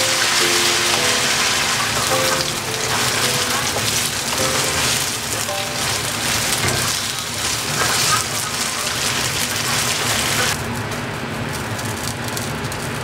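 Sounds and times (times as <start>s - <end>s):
soft background music: 0.0s - 7.3s
food sizzling in hot oil: 0.0s - 13.0s.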